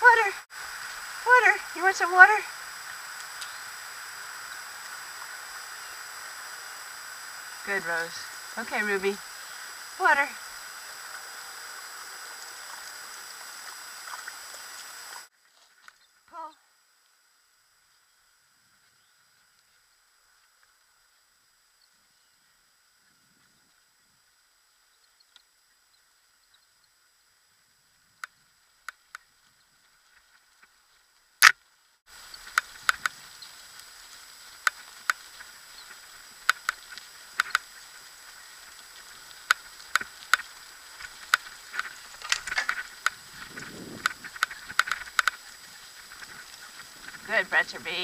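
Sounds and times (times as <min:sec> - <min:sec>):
sharp clicks: 0:36.4 - 0:37.7
kick scooter rolling and rattling: 0:39.4 - 0:47.3.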